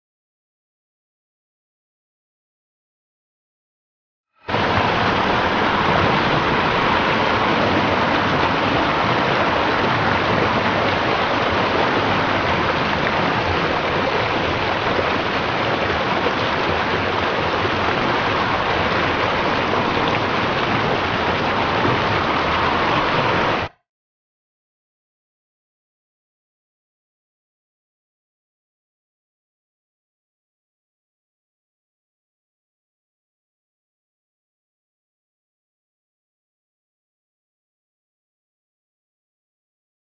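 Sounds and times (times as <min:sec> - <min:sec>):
floodwater rushing: 0:04.5 - 0:23.8.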